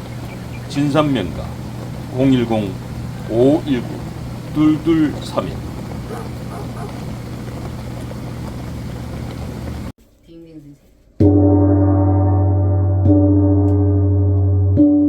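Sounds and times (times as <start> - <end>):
steady hum and hiss: 0.0 - 9.9
gong ringing: 11.2 - 15.0.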